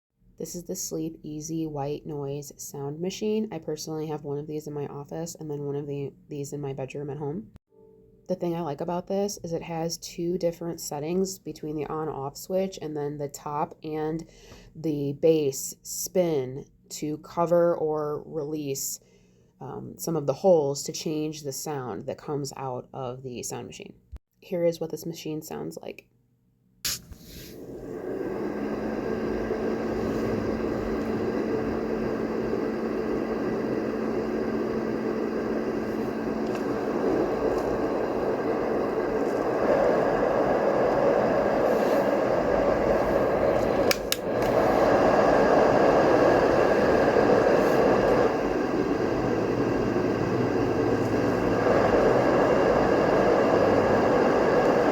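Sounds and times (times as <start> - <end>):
faint hum: 27.3 - 54.9
white noise machine rushing: 27.5 - 54.9
click: 43.8 - 44.6.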